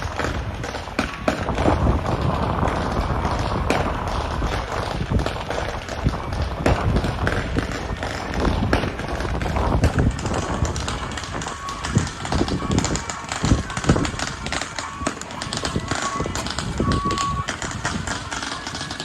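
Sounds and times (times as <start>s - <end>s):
sharp bangs and knocks: 0.0s - 19.0s
procession din: 5.6s - 19.0s.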